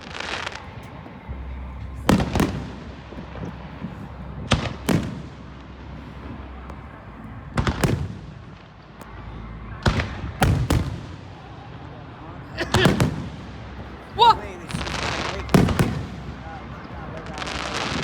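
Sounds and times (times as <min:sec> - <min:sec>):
fireworks bangs with echo: 0:00.0 - 0:18.0.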